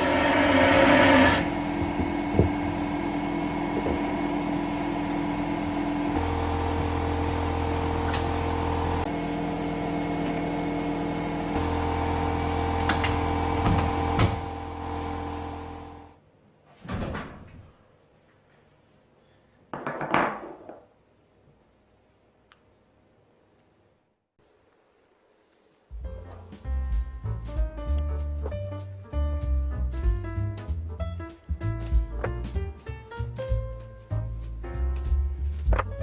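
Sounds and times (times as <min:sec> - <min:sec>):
electric machine humming: 0:00.0 - 0:16.2.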